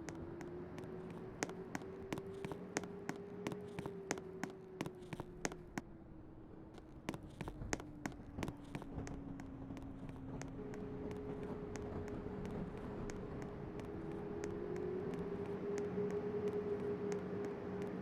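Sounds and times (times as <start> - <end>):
sharp irregular clicks: 0.0 - 5.9, 6.8 - 18.0
low train rumble: 0.0 - 18.0
train whine: 7.6 - 18.0.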